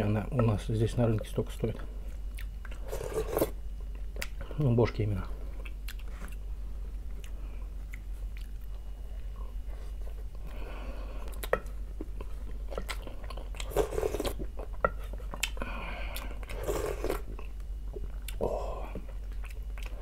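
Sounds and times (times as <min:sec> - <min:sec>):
chewing and biting food: 0:05.6 - 0:09.4, 0:11.3 - 0:20.0.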